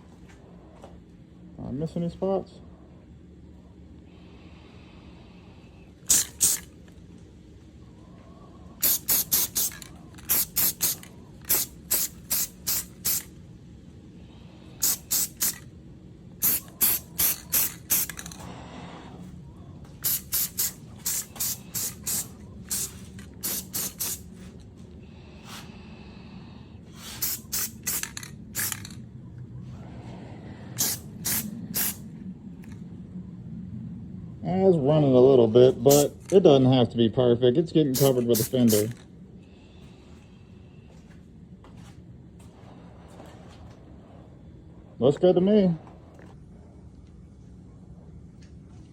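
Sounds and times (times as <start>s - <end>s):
aerosol spray can bursts: 6.1s - 6.7s, 8.8s - 13.3s, 14.8s - 15.7s, 16.4s - 18.4s, 20.0s - 24.4s, 27.0s - 29.0s, 30.8s - 32.0s, 35.9s - 36.4s, 38.0s - 39.0s.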